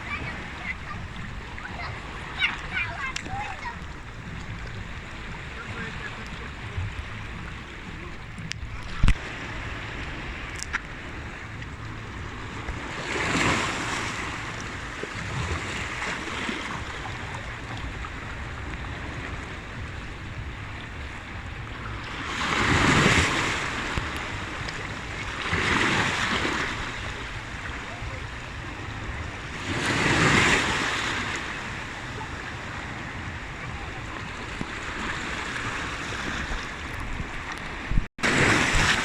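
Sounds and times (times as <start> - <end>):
low wind rumble on microphone: 0.0 - 39.0
sea waves washing onto shore: 0.0 - 39.0.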